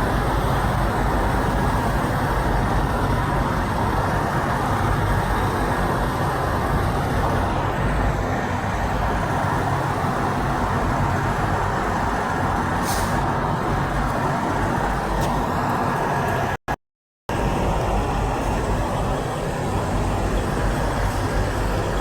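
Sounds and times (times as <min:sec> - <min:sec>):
heavy road traffic: 0:00.0 - 0:22.0
short hiss: 0:12.8 - 0:13.2.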